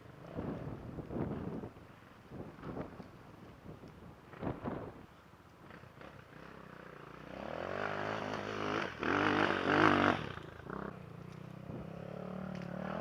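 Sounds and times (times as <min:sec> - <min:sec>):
motorcycle engine revving: 0:05.7 - 0:13.0.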